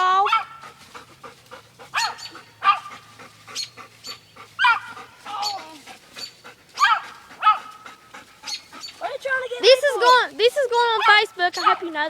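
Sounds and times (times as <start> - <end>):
dog yelping and whining: 1.9 - 9.2.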